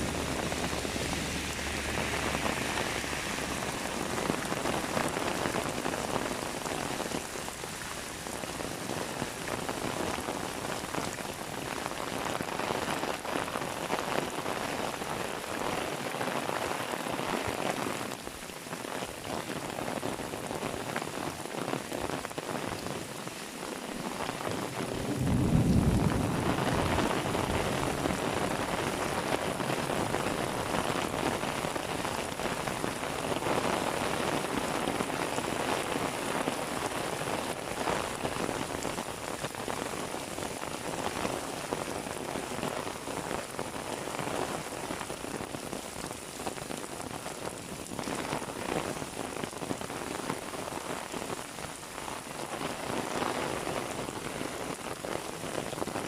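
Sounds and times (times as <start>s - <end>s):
heavy rain on hard surfaces: 0.0s - 56.0s
low rumble: 24.9s - 28.4s.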